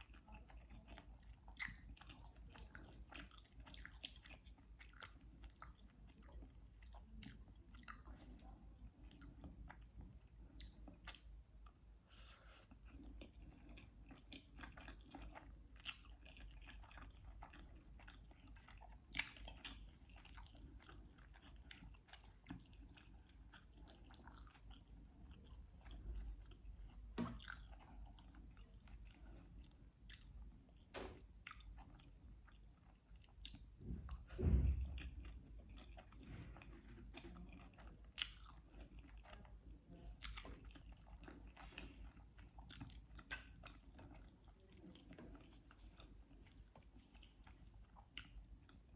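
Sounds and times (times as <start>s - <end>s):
chewing and biting food: 0.0s - 48.9s
low thump: 33.8s - 35.5s.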